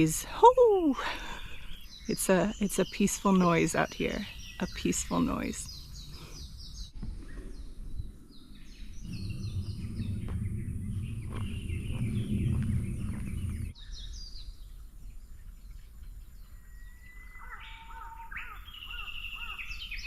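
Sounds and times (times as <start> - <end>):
birds chirping: 0.0 - 20.0
low rumble: 6.7 - 14.0.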